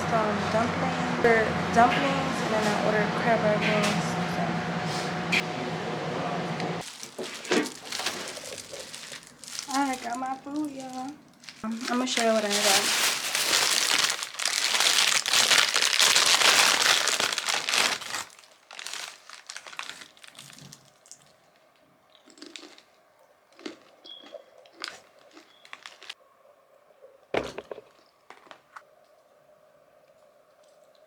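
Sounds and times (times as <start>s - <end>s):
food containers clicking and crackling: 6.8s - 21.0s
paper bag crinkling: 6.8s - 21.1s, 25.5s - 26.2s.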